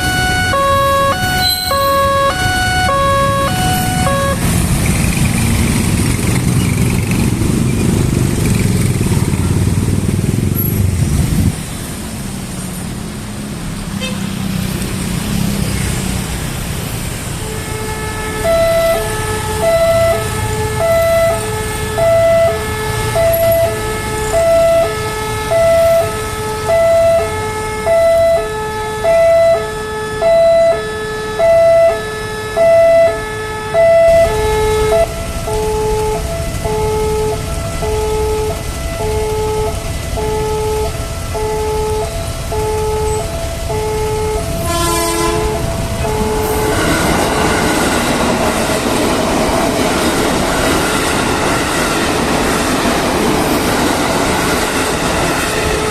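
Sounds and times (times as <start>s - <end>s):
approaching train rumble: 0.0s - 26.7s, 33.5s - 55.9s
short tone: 0.5s - 4.4s.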